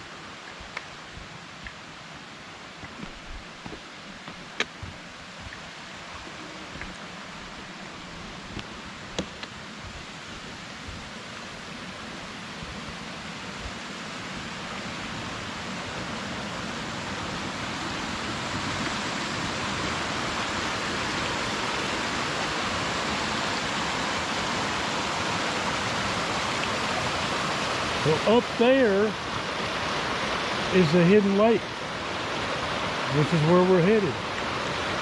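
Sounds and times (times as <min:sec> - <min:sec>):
mountain stream rushing: 0:00.0 - 0:35.0.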